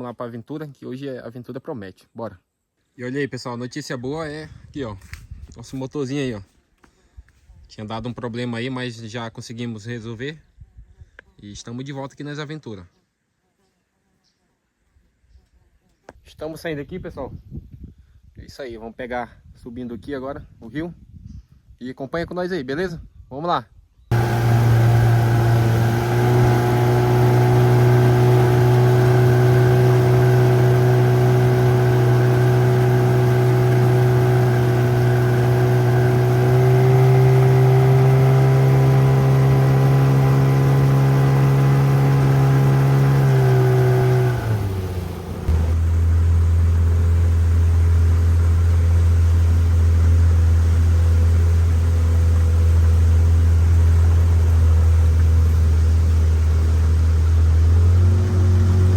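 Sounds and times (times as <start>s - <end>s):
small boat motor running: 24.1s - 58.9s.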